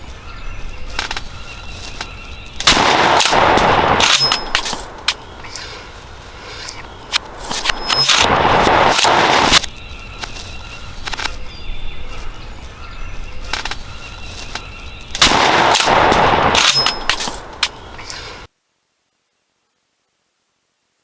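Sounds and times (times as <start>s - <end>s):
shotgun blasts: 2.6s - 9.7s, 15.2s - 18.5s.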